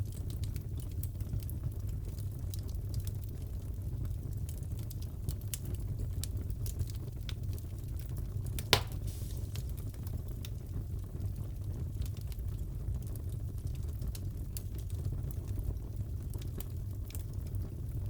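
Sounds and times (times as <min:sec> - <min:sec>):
low rumble of fire: 0:00.0 - 0:18.0
wood fire crackling and popping: 0:00.0 - 0:18.0.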